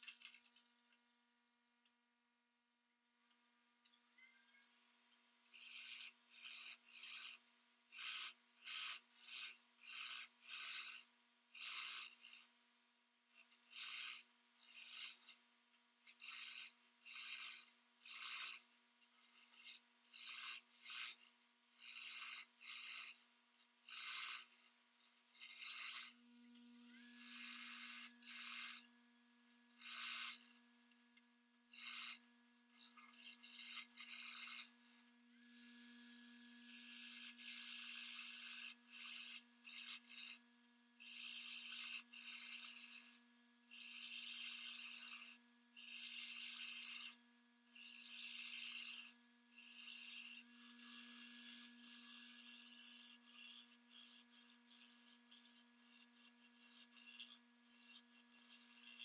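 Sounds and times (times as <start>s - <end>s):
rasping strokes on wood: 16.2s - 18.6s, 19.3s - 21.2s, 21.8s - 23.2s, 23.8s - 24.7s, 25.3s - 26.2s, 26.9s - 28.9s, 29.7s - 30.6s, 32.8s - 35.0s.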